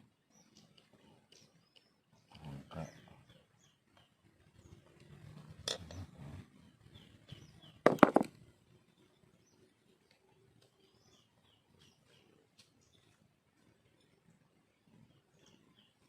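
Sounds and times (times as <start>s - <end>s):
small birds chirping: 0.0s - 16.0s
hard knocks: 7.9s - 8.3s.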